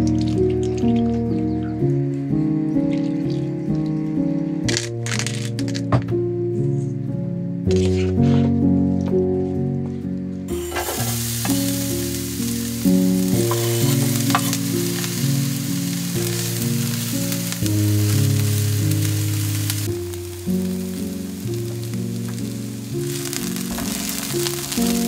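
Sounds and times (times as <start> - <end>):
background music: 0.0 - 25.0
food sizzling in a skillet: 10.5 - 25.0.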